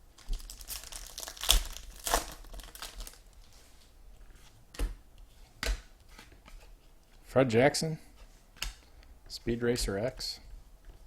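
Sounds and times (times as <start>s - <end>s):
foil card pack crinkling: 0.2s - 3.4s.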